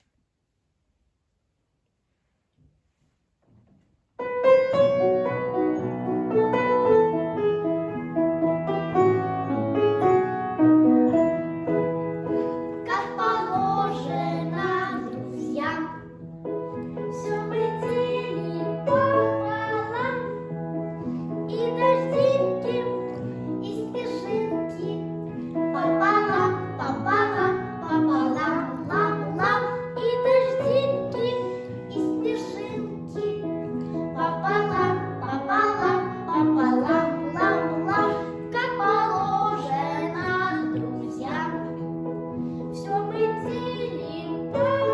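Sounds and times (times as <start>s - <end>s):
children singing: 34.2s - 41.6s.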